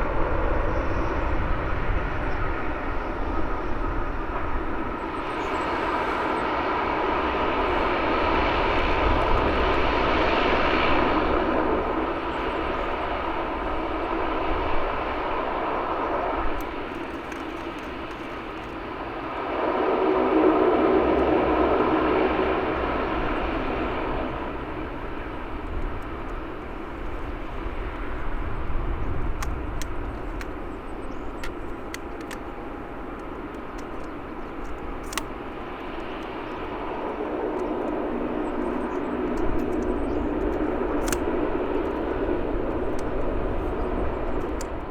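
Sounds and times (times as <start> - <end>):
jet engine noise: 0.0 - 44.9
faint clicks: 5.1 - 6.6, 16.5 - 18.9, 24.4 - 44.9.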